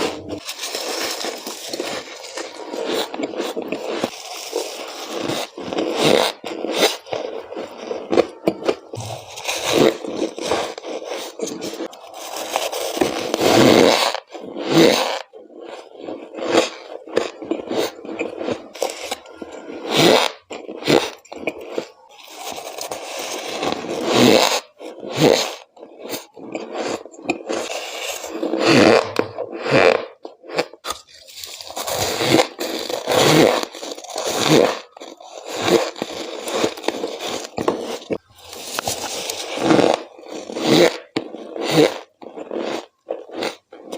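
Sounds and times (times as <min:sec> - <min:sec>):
frost grinding between teeth: 0:00.0 - 0:43.9.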